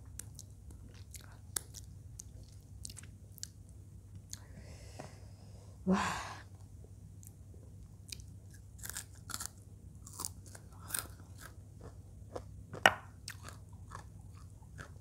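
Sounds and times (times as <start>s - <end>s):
crunchy chewing: 0.1s - 3.6s, 8.0s - 15.0s.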